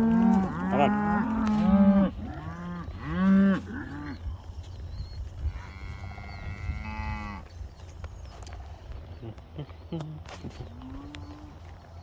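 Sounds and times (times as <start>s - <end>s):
cows mooing: 0.0s - 4.2s.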